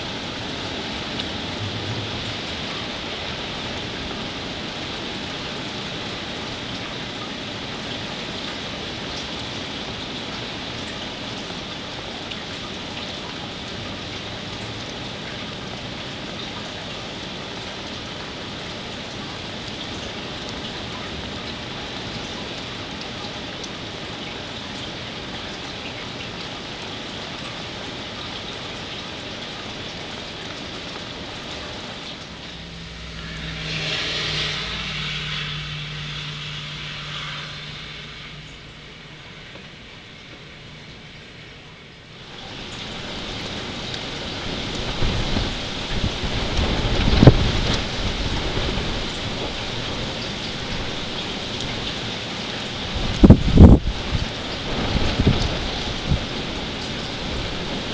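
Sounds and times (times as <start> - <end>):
rain falling steadily: 0.0 - 57.9
tyre hiss on wet road: 29.7 - 40.6.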